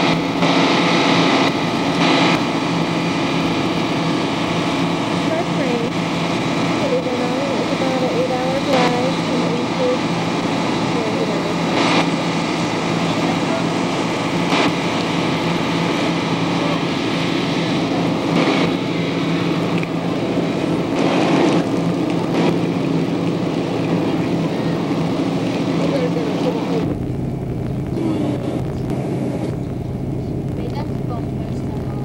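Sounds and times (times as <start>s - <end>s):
stopped train humming: 0.0s - 32.0s
crowd talking: 5.3s - 5.9s, 6.8s - 27.0s, 27.6s - 32.0s.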